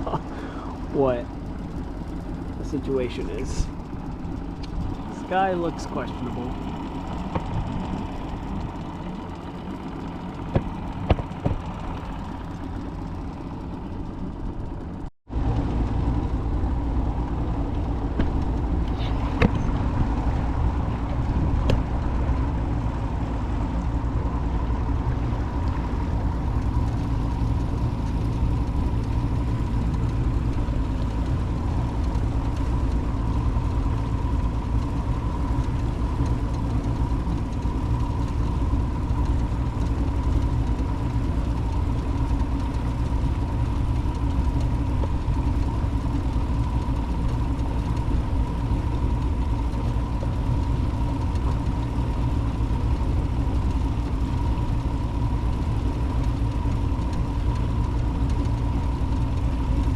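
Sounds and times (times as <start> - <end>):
boat motor running: 0.0 - 59.9
water rushing: 2.5 - 12.9.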